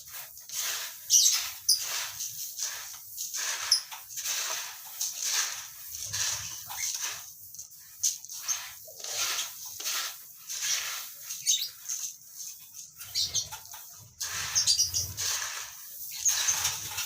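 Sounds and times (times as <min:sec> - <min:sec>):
lovebirds chattering and screeching: 0:01.1 - 0:01.8, 0:11.3 - 0:12.1, 0:13.0 - 0:13.6, 0:14.2 - 0:15.2.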